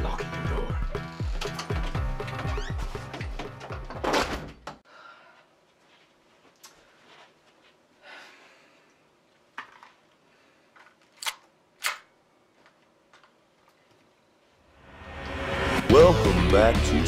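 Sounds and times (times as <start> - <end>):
handgun mechanical clicks: 11.2 - 12.1.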